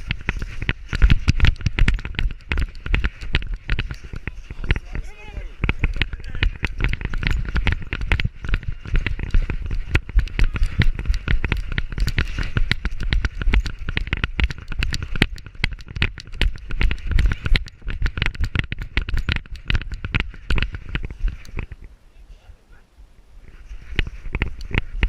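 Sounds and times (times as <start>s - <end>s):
rapid irregular knocking and crackling: 0.0s - 22.0s, 23.4s - 25.0s.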